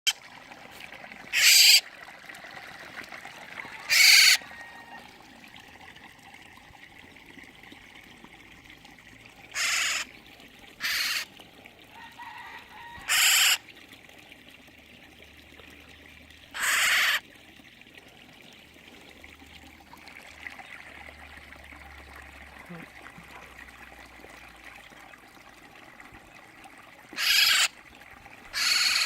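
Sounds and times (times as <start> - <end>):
bird giving harsh rasping calls: 1.3 - 1.8, 3.9 - 4.4, 9.6 - 10.1, 10.8 - 11.3, 13.1 - 13.6, 16.6 - 17.2, 27.2 - 27.7, 28.5 - 29.0.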